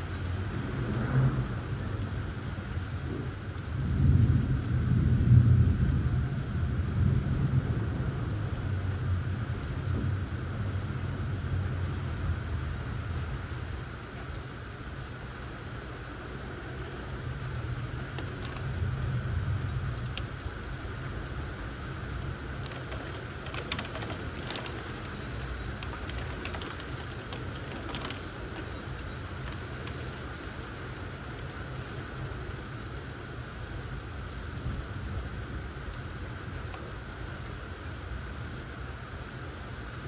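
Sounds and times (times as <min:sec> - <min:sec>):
thunder rumble: 0:00.0 - 0:13.8, 0:16.5 - 0:32.6
steady rain: 0:00.0 - 0:40.0.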